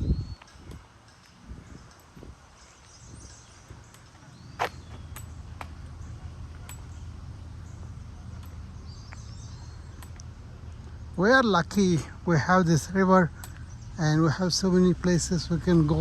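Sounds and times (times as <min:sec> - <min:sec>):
low outdoor rumble: 0:00.0 - 0:16.0
sharp clicks: 0:08.3 - 0:12.0, 0:12.9 - 0:14.0.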